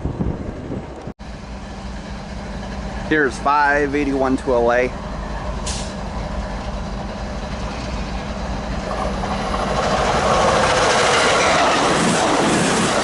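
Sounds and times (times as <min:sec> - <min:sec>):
passenger train passing: 0:00.0 - 0:13.0
train wheels on rails: 0:00.0 - 0:13.0.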